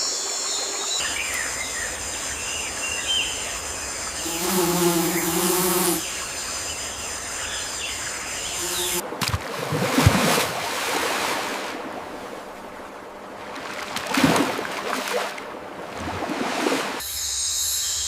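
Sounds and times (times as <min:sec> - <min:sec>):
steady natural background hiss: 0:00.0 - 0:09.6, 0:10.4 - 0:18.0
flying insect buzzing: 0:01.9 - 0:07.8, 0:08.4 - 0:09.0.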